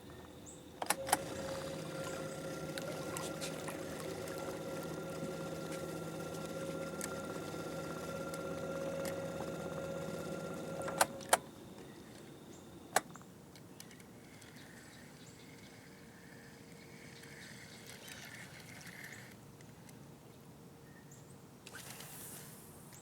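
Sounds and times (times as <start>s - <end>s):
sharp clicks: 0.8s - 11.5s
small electric motor humming: 0.9s - 12.7s.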